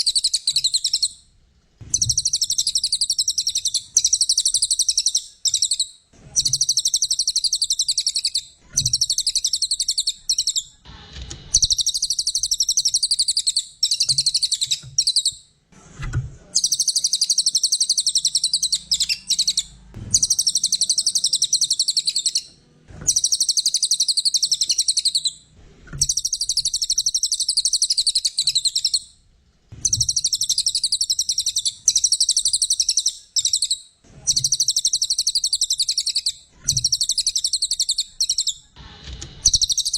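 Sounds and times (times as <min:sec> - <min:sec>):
songbird chattering song: 0:00.0 - 0:01.2, 0:01.9 - 0:10.8, 0:11.6 - 0:15.4, 0:16.6 - 0:22.5, 0:23.1 - 0:25.4, 0:26.0 - 0:29.1, 0:29.8 - 0:38.8, 0:39.4 - 0:39.9.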